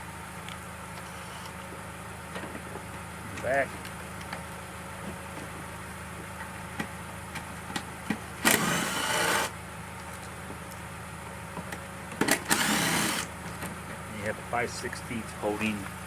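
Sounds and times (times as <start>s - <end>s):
cordless driver whirring: 8.4s - 9.5s, 12.3s - 13.3s.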